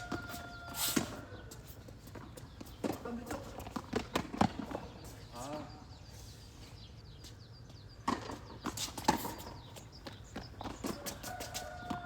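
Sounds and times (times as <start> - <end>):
tennis balls bouncing on court: 0.0 - 5.2, 7.7 - 12.0
tennis balls struck with rackets: 2.7 - 5.0, 8.0 - 12.0.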